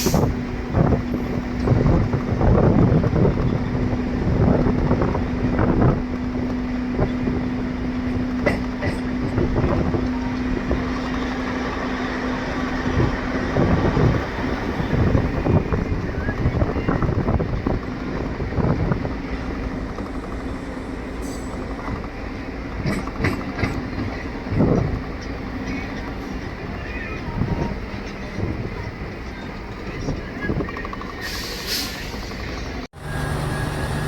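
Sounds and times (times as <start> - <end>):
train wheels rumbling on rails: 0.0 - 34.0
train thumps: 8.2 - 10.0.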